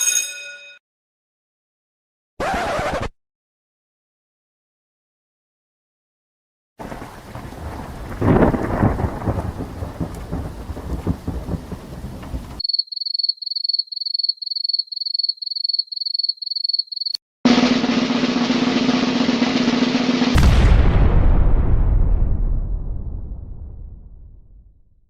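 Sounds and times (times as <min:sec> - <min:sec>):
rain: 0:06.8 - 0:12.6
thunder rumbling: 0:06.8 - 0:12.6, 0:17.5 - 0:24.8.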